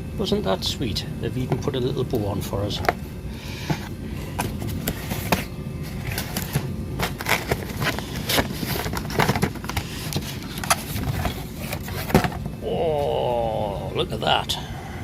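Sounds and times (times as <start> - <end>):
packaging crinkling and rustling: 4.3 - 12.5.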